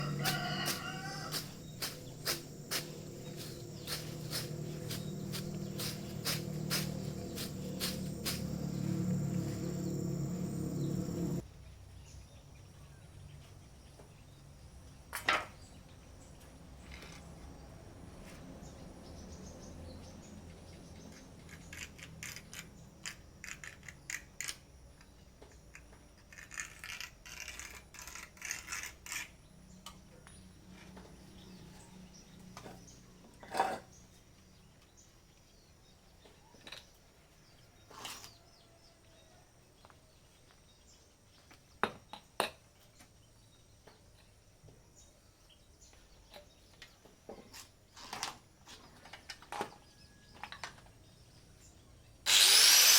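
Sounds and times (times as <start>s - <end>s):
light scraping: 0.0s - 11.4s.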